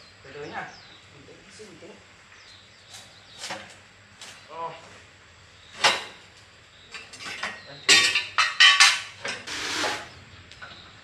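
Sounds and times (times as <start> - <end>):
metal scrape: 9.4 - 10.2.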